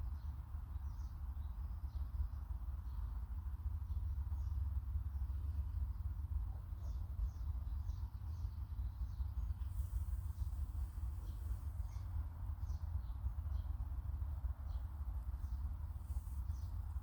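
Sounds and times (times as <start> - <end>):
faint bird chirps: 3.8 - 17.0.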